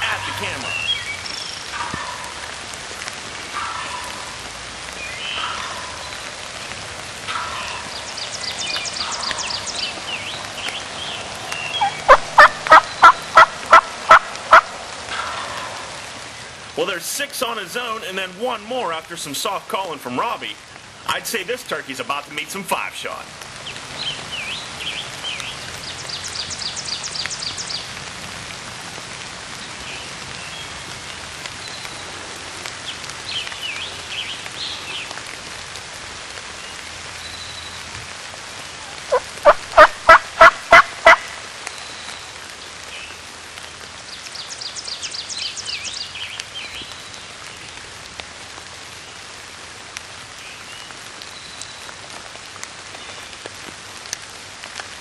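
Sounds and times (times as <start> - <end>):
steady rain: 0.0 - 55.0
turkey gobbling: 1.7 - 2.4, 3.6 - 4.4, 5.4 - 6.1, 7.3 - 7.9, 11.8 - 15.9, 39.1 - 41.3.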